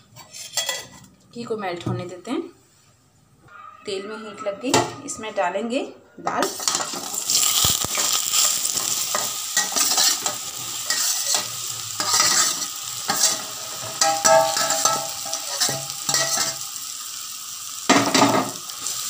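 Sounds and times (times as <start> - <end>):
metal scraping on metal: 0.0 - 1.2, 6.3 - 16.6
ghee sizzling: 6.5 - 19.0.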